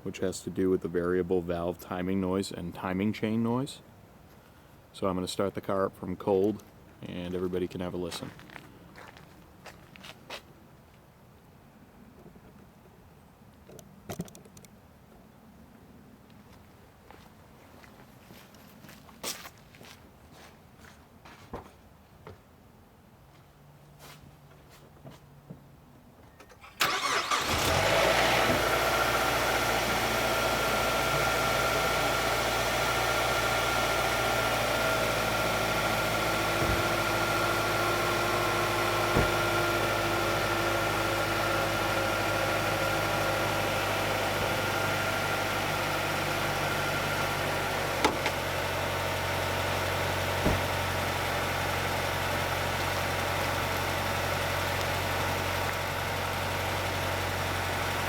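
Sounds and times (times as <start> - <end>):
engine ticking click: 26.4 - 28.9, 34.6 - 45.0, 49.7 - 51.7
car engine starting and idling: 26.4 - 58.0.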